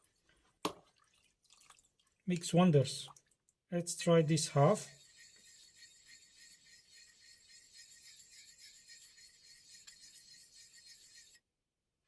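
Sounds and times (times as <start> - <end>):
stone scrubbing on wet whetstone: 4.2 - 11.4.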